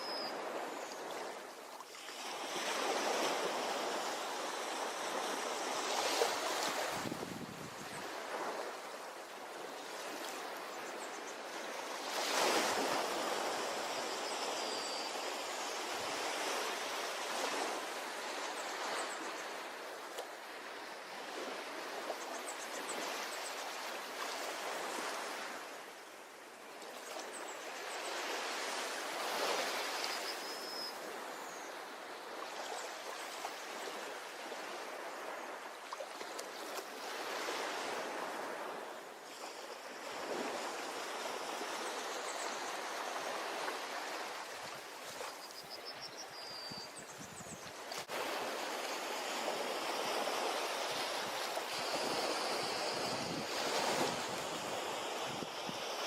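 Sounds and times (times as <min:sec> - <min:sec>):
ocean waves washing onto beach: 0:00.0 - 0:46.0, 0:46.9 - 0:56.0.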